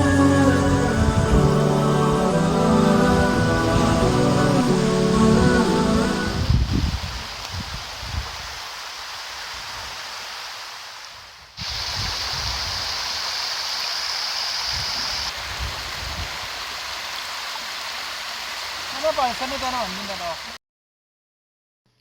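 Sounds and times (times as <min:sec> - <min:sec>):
waterfall rushing over rocks: 0:00.0 - 0:20.6.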